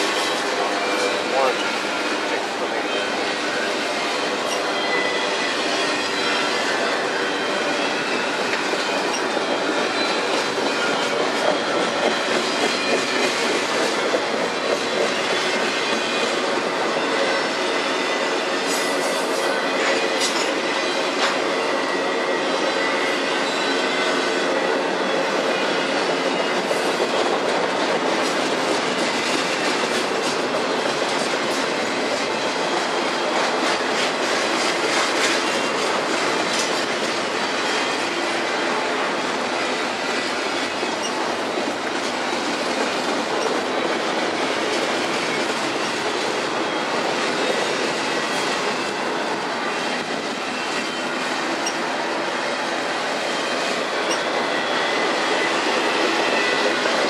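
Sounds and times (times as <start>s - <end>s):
steel wheels rumbling on rail: 0.0s - 57.0s
wheels clickety-clack: 7.9s - 16.6s, 25.1s - 38.4s, 40.1s - 52.0s, 53.5s - 57.0s.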